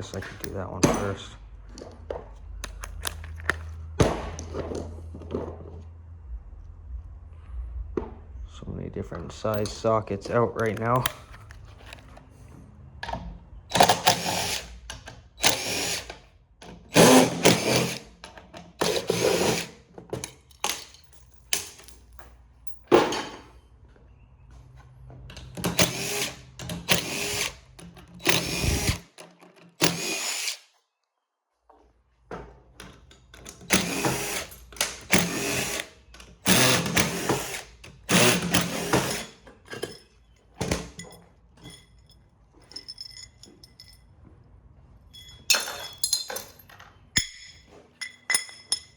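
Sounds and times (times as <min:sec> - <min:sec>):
cordless drill bursts: 0:13.7 - 0:14.8, 0:15.4 - 0:16.1, 0:16.9 - 0:18.1, 0:18.8 - 0:19.7, 0:25.7 - 0:27.6, 0:28.2 - 0:29.1, 0:29.8 - 0:30.7, 0:33.7 - 0:39.4.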